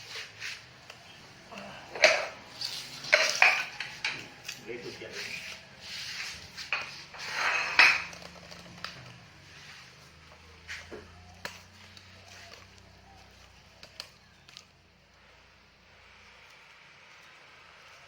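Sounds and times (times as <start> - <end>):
metal tools clinking and scraping: 0.0 - 9.8.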